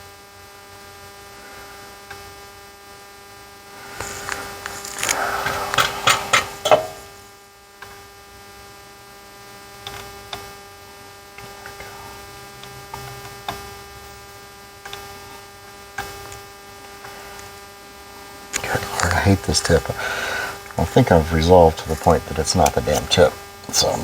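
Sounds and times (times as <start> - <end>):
electrical mains hum: 3.5 - 7.3, 18.3 - 24.0.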